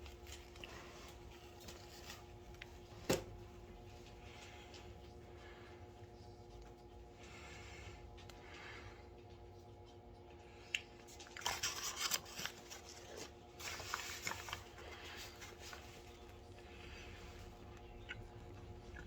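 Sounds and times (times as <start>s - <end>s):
faint steady hum: 0.0s - 19.0s
plastic packaging rustling: 11.1s - 16.6s.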